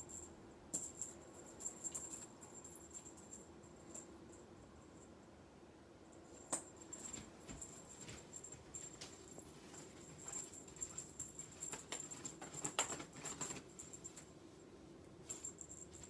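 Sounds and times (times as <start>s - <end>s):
faint steady hum: 0.0s - 16.0s
faint taps and rustles: 6.4s - 14.3s.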